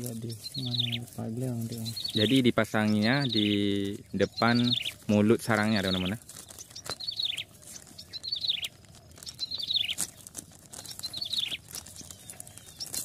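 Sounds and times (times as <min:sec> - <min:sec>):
small bird calling: 0:00.0 - 0:13.0
plastic bag rustling: 0:03.7 - 0:13.0.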